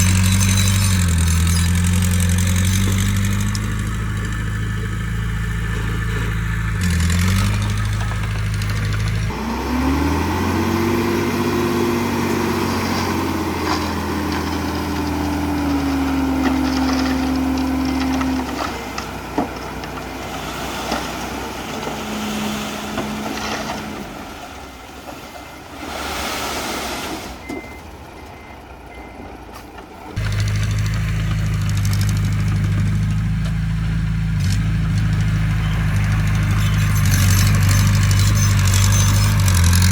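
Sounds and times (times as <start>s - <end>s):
diesel engine revving: 0.0s - 39.9s.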